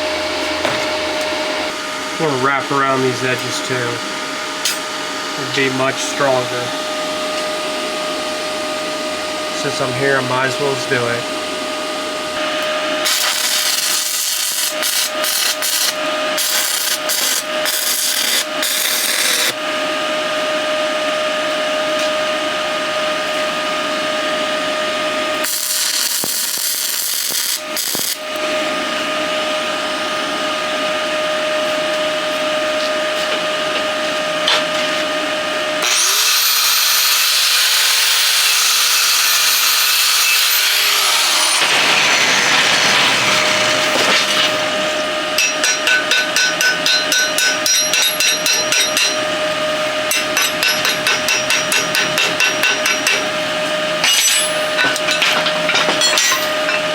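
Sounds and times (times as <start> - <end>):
steady electrical hum: 0.0 - 37.4
welding arc crackling and sizzling: 12.6 - 19.6, 25.4 - 28.4, 35.8 - 49.3
high-pitched steady whine: 39.4 - 56.9.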